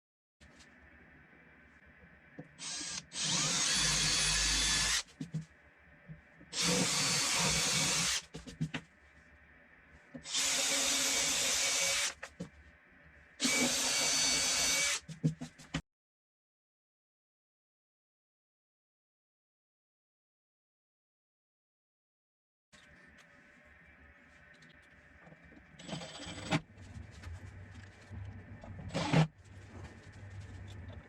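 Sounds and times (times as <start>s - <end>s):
power drill running: 2.6s - 5.0s, 6.6s - 8.2s, 10.2s - 12.2s, 13.4s - 15.0s, 28.9s - 29.2s.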